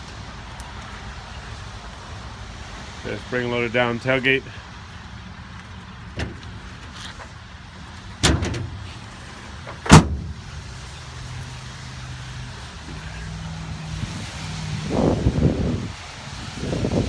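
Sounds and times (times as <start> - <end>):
truck tailgate slamming shut: 6.1 - 10.8
truck tailgate banging: 6.1 - 10.9, 12.8 - 13.4.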